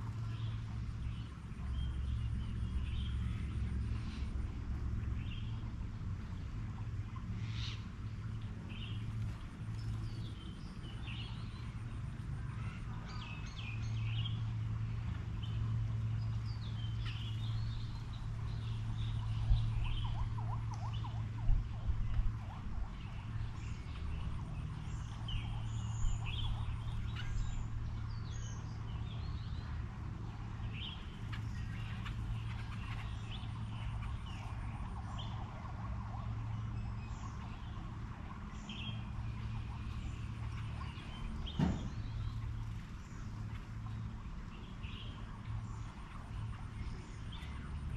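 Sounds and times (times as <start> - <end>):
low hum: 0.0 - 47.9
songbirds chirping: 0.0 - 47.9
brief knocks: 41.5 - 42.0.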